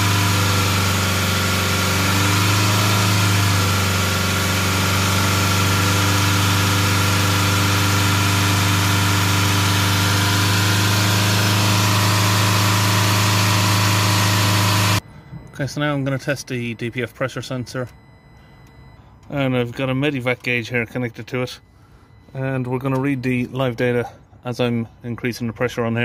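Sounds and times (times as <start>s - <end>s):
diesel engine running at high revs: 0.0s - 15.2s.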